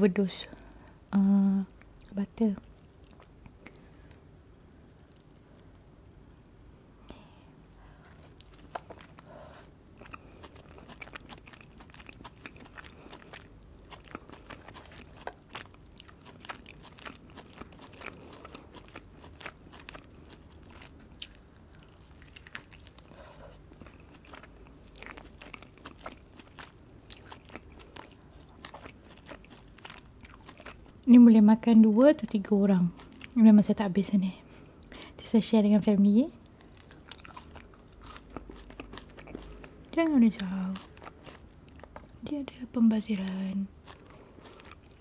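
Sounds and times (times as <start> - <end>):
chewing and biting chicken: 10.0 - 31.0, 36.5 - 42.2, 43.7 - 45.0.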